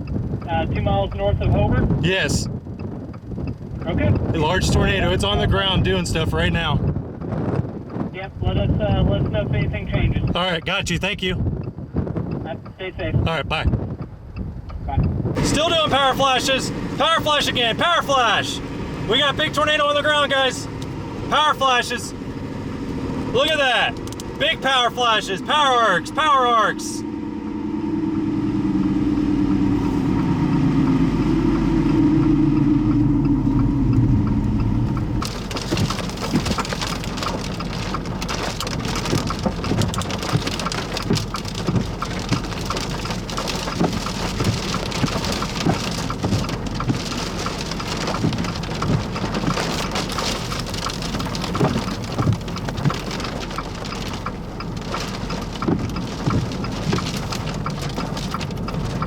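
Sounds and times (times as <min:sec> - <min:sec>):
low vehicle rumble: 0:00.0 - 0:59.0
heavy rain pelting down: 0:04.3 - 0:06.7, 0:15.4 - 0:59.0.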